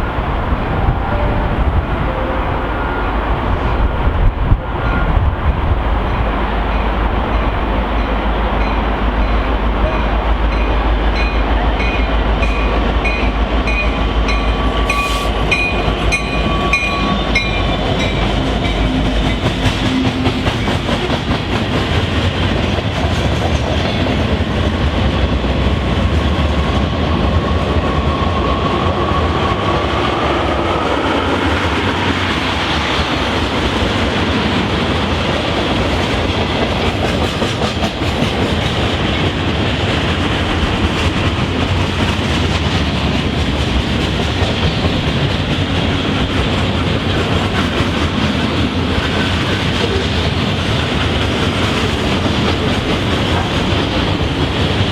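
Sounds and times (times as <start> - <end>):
train rumbling: 0.0 - 54.9
train wheels clicking over rail joints: 10.5 - 54.9.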